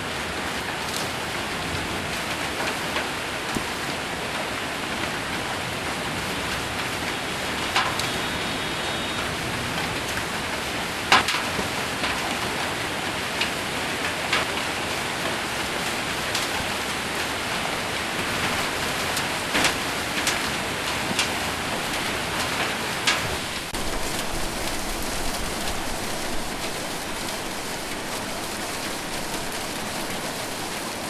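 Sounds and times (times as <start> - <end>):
hail and rain on a metal roof: 0.0 - 31.0
sharp hail hits: 7.6 - 8.4, 11.0 - 14.8, 15.4 - 31.0.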